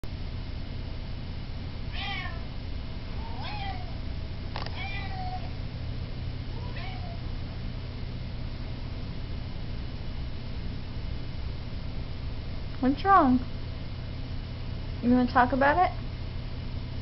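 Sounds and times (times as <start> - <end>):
air conditioning hum: 0.0 - 17.0
cat meowing: 1.9 - 2.5, 3.2 - 4.0, 4.6 - 5.6, 6.5 - 7.3.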